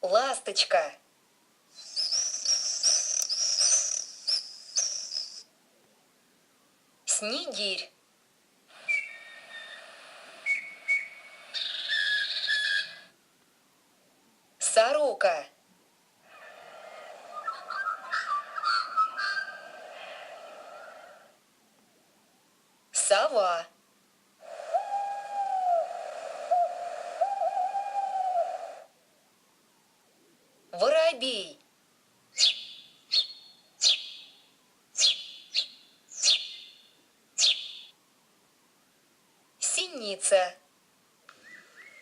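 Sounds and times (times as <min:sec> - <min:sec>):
recording hiss: 0:00.0 - 0:42.0
bird whistled calls: 0:01.8 - 0:05.4, 0:08.8 - 0:13.1, 0:17.3 - 0:19.8, 0:24.5 - 0:28.8, 0:32.4 - 0:34.3, 0:35.0 - 0:36.8, 0:37.4 - 0:37.9, 0:41.4 - 0:42.0
owl hooting: 0:01.8 - 0:05.5, 0:08.7 - 0:13.2, 0:16.2 - 0:21.4, 0:24.4 - 0:29.0, 0:32.3 - 0:36.8, 0:37.4 - 0:38.0.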